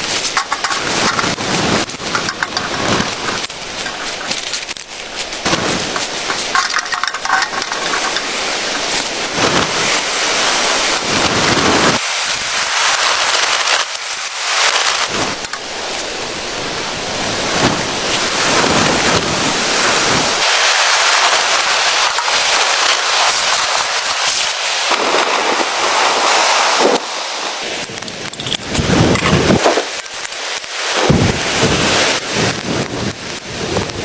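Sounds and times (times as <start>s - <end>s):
crackles and pattering: 0.0s - 16.1s, 27.8s - 34.0s
blizzard wind gusting: 0.0s - 30.0s, 30.6s - 34.0s.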